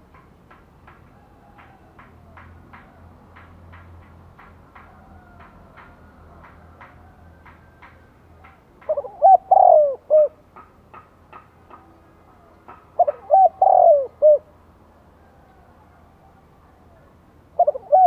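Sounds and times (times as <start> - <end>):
dove cooing: 8.9 - 10.4, 12.4 - 14.6, 15.2 - 18.0.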